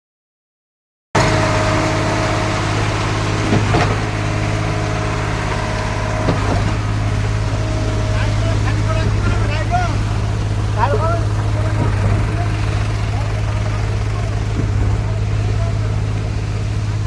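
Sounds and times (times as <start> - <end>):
pump machine engine running: 1.2 - 17.0
short knocks: 3.4 - 15.3.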